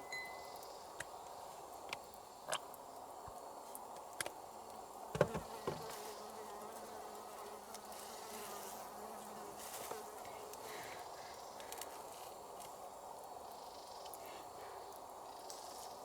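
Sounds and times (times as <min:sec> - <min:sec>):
flying insect buzzing: 0:05.1 - 0:12.5.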